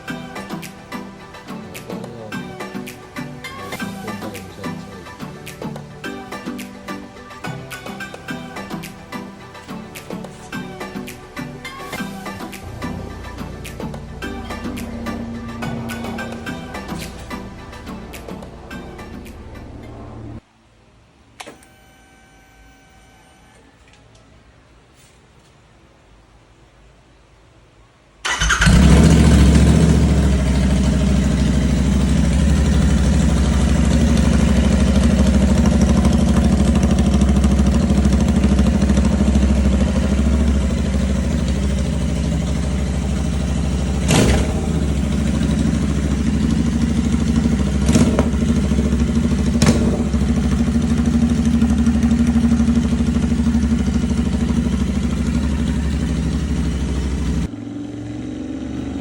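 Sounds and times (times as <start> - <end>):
sharp exhaust cracks: 28.2 - 58.1
motorcycle engine idling loudly: 28.5 - 59.0.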